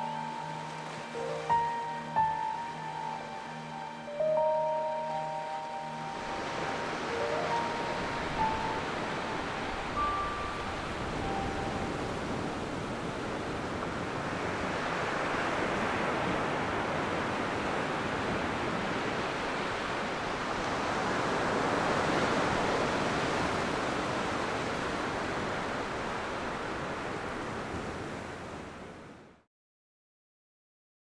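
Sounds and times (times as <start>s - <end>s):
small waves washing on sand: 10.6s - 29.1s.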